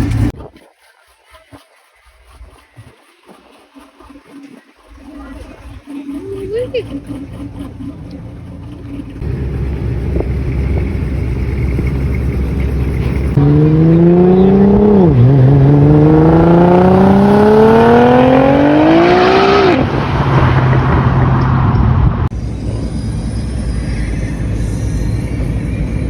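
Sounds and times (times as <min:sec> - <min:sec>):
car accelerating hard: 0:05.1 - 0:22.3.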